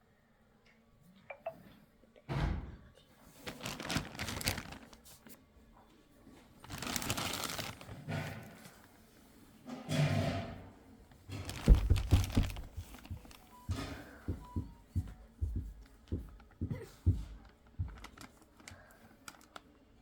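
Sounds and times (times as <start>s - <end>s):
packaging rustling and scraping: 3.3s - 5.4s, 6.5s - 9.1s, 11.3s - 14.6s, 17.4s - 19.6s.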